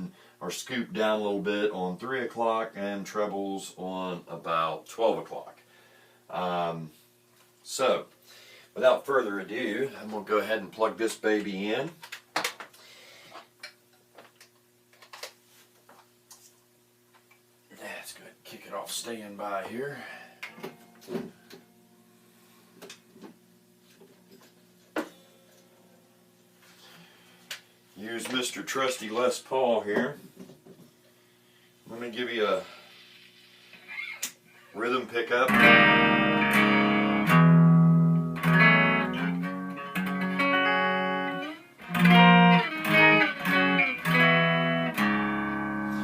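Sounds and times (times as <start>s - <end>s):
guitar amplifier hum: 18.5s - 46.0s
distorted electric guitar riff: 34.8s - 46.0s.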